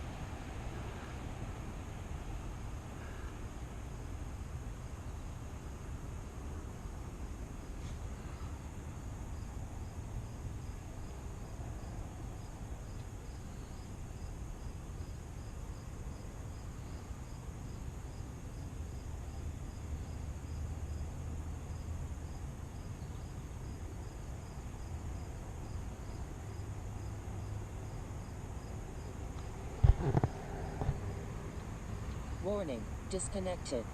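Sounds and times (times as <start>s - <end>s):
crickets chirping: 0.0s - 33.9s
wind rumble on microphone: 29.6s - 31.4s.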